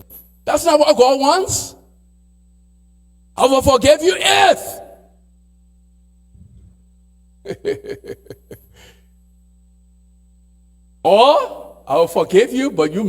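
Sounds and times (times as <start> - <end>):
low electrical hum: 0.0 - 13.0
person laughing: 7.4 - 9.0.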